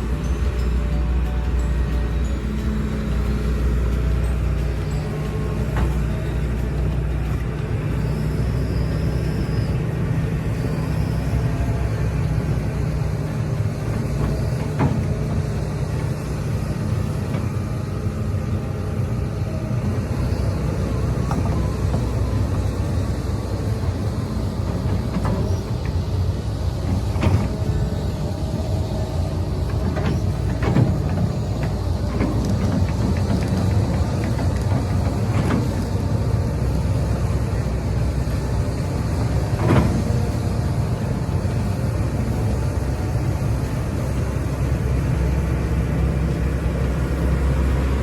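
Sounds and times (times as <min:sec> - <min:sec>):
excavator diesel engine running: 0:00.0 - 0:48.0.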